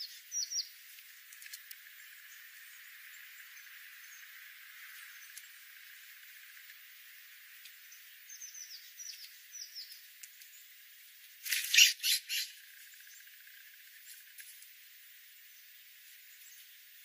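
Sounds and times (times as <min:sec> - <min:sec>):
harsh bird squawks: 0:11.5 - 0:12.6
short high bird chirps: 0:11.5 - 0:12.6.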